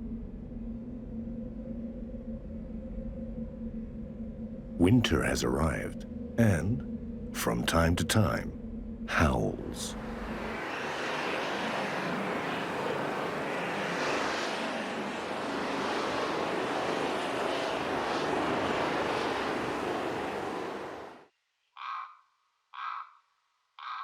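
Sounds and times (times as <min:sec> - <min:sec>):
wind howling: 0:09.1 - 0:21.2.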